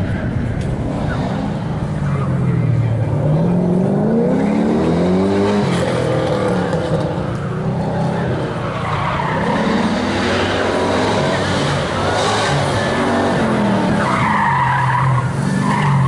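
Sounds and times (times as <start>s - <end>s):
car engine accelerating hard: 0.1s - 16.0s.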